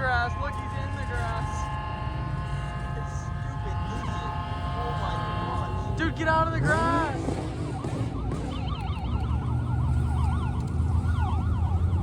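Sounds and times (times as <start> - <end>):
siren on fast yelp: 2.6 - 12.0.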